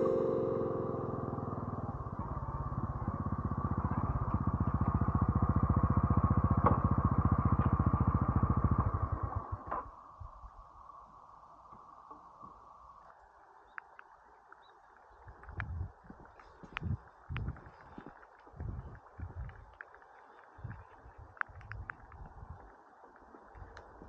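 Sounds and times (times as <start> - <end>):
faint hum: 0.0 - 13.7
motorcycle engine running: 1.0 - 9.6.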